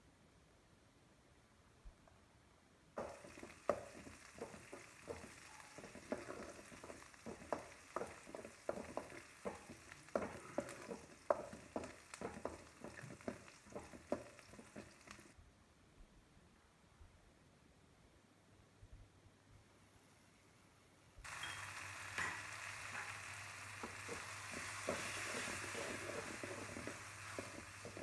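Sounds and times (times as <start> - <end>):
metal spoon scraping a pan: 3.0 - 15.3, 23.8 - 28.0
vegetables sizzling in hot oil: 3.0 - 15.4, 21.2 - 28.0.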